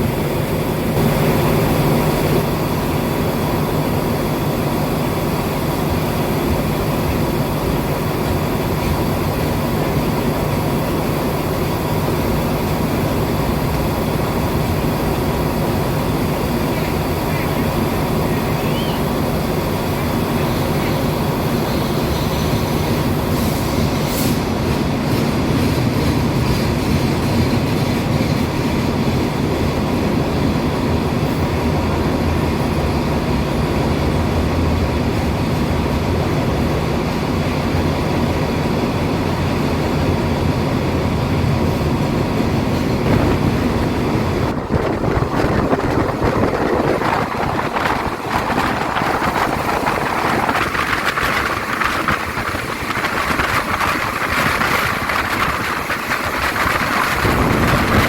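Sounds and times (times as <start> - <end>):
train wheels on track: 0.0 - 58.0
low engine hum: 31.3 - 58.0.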